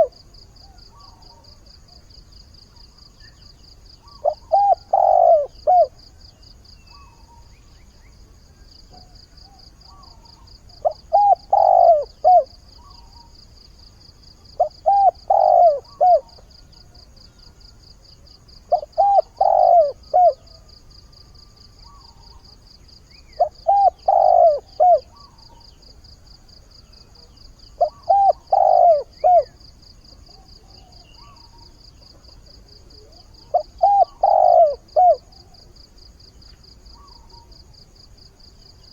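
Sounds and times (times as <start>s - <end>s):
dove cooing: 0.0s - 2.0s, 4.0s - 6.0s, 8.9s - 13.4s, 14.5s - 17.0s, 18.6s - 20.7s, 23.2s - 26.0s, 27.1s - 35.7s.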